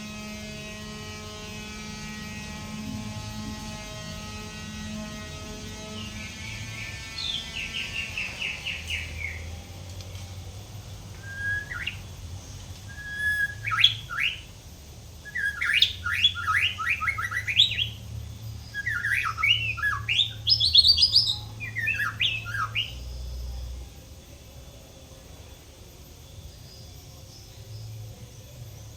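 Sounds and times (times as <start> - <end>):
steady low hum: 0.0 - 28.9
bird singing varied whistles: 11.2 - 12.1, 12.9 - 14.5, 15.2 - 18.0, 18.6 - 23.1.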